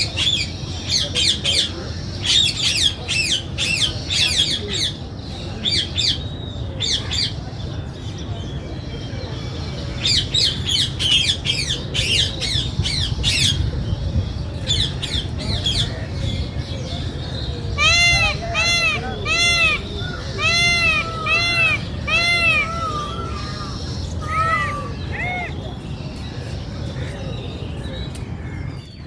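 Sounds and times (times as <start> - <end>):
birds squawking: 17.6 - 25.8.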